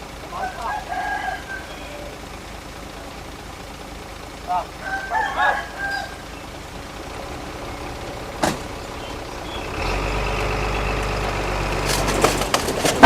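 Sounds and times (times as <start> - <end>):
heavy machine engine running: 0.0 - 13.0
sharp knock: 8.4 - 8.7.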